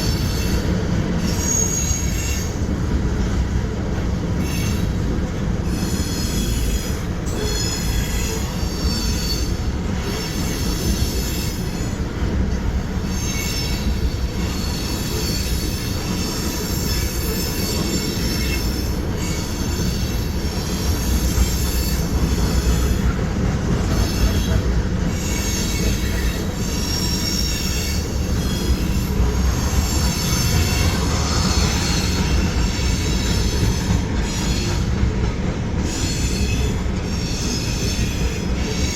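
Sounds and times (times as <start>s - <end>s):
freight train rumbling on rails: 0.0s - 38.9s
high-pitched wheel squeal: 0.1s - 2.6s, 25.2s - 34.8s.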